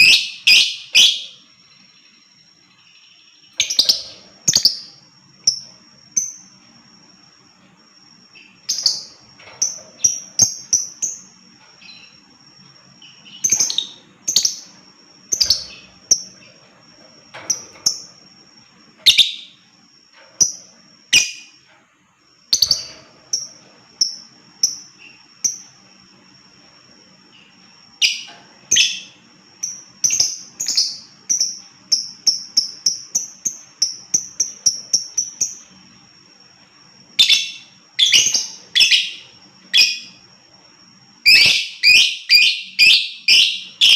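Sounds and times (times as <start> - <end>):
lovebird chirping and screeching: 0.0 - 1.4, 3.6 - 5.0, 41.3 - 43.9.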